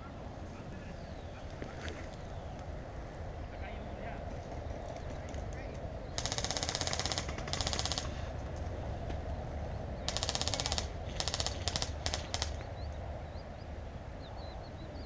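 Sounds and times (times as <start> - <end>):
airsoft guns firing bursts: 6.2 - 8.4, 10.0 - 12.7.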